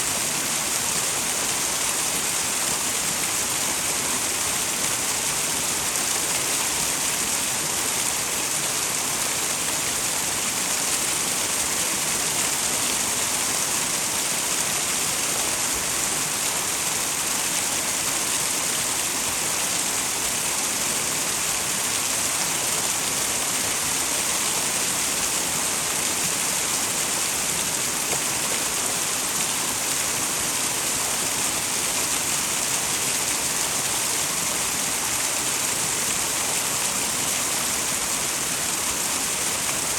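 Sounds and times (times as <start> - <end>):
waterfall splashing: 0.0 - 39.9.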